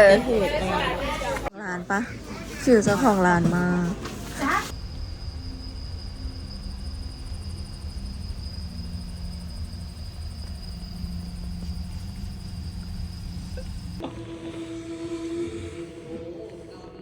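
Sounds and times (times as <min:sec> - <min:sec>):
vehicle rumbling: 0:02.1 - 0:14.0.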